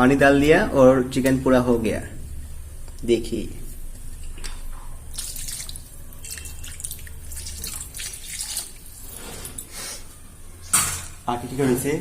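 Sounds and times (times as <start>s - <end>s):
low steady hum: 0.0s - 12.0s
curry bubbling in a pot: 5.1s - 9.1s.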